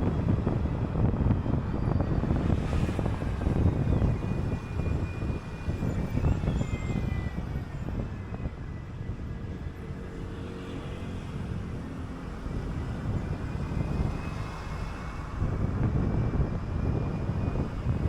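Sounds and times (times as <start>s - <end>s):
bus engine and road rumble: 0.0s - 18.0s
faint high whine: 1.7s - 9.2s.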